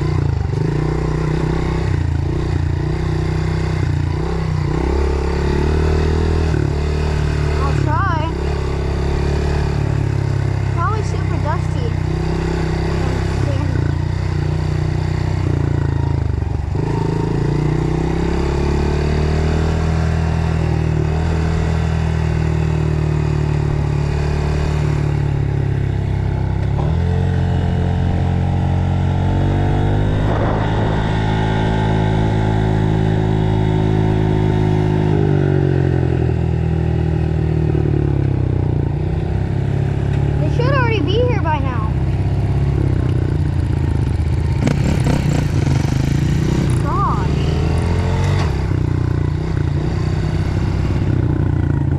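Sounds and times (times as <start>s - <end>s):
dirt bike engine: 0.0s - 51.9s
wind noise: 28.2s - 34.2s.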